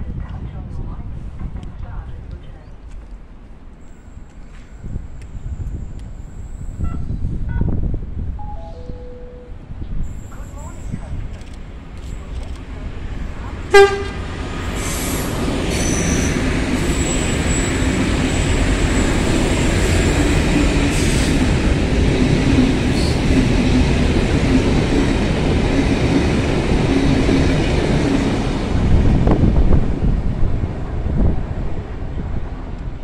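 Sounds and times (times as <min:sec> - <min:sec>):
diesel train passing: 0:00.4 - 0:33.0
train horn blast: 0:13.7 - 0:14.3.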